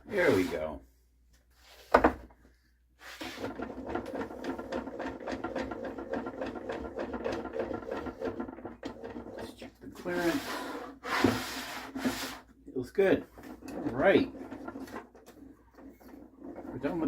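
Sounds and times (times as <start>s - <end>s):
wood scraping strokes: 0.1s - 0.8s, 3.0s - 17.0s.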